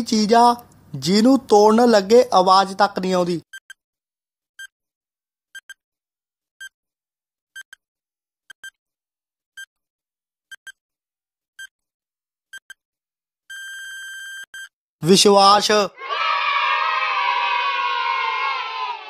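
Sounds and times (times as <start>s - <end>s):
high electronic timer beeps: 13.5s - 14.7s.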